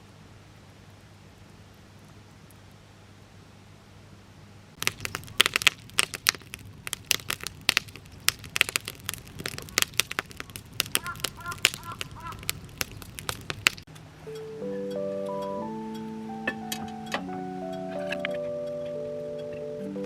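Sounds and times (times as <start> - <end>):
campfire crackling and popping: 4.8 - 14.0.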